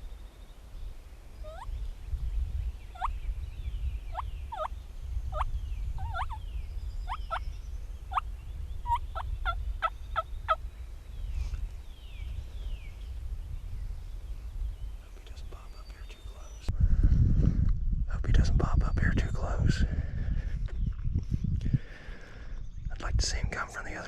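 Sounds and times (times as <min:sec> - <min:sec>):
turkey yelps: 0:01.5 - 0:01.7, 0:06.0 - 0:06.4.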